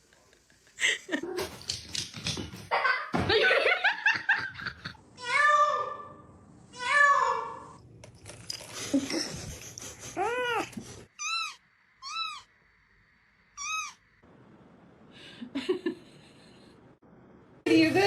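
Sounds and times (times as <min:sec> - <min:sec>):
cats meowing: 0:10.2 - 0:12.5.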